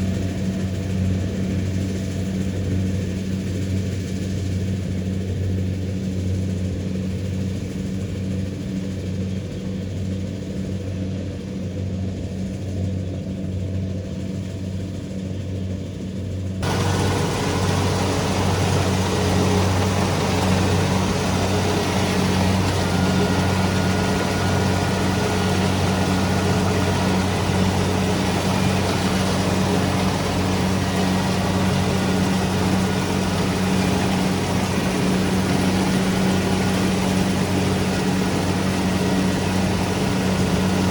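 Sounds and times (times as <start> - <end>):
combine harvester diesel engine: 16.6 - 40.9.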